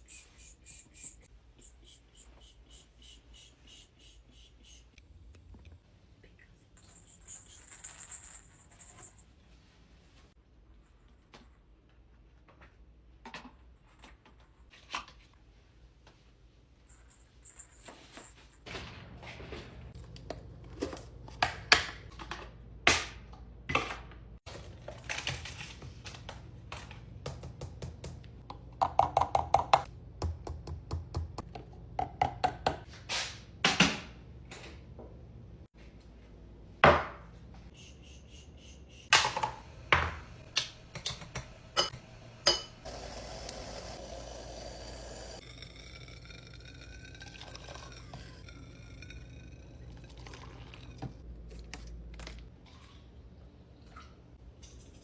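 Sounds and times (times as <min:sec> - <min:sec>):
dishes and utensils clinking: 0:41.8 - 0:42.8
water running: 0:42.6 - 0:51.2.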